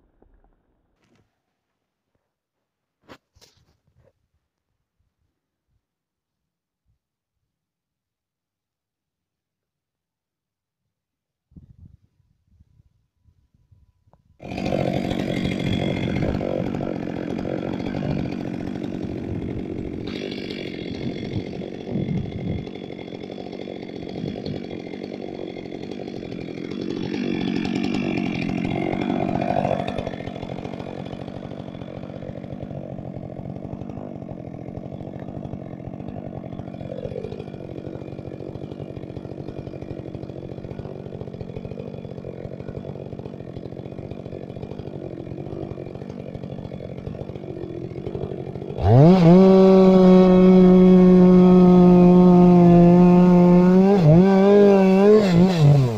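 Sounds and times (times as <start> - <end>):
chainsaw engine running: 14.4 - 55.9.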